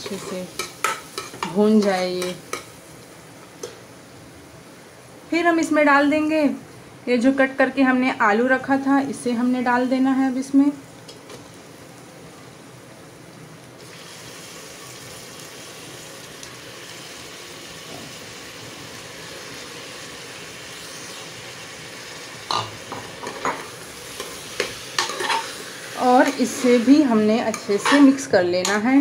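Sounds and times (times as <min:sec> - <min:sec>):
potatoes sizzling in oil: 0:00.0 - 0:06.5, 0:07.9 - 0:29.0
ladle scraping pot: 0:24.6 - 0:25.6, 0:27.5 - 0:28.8.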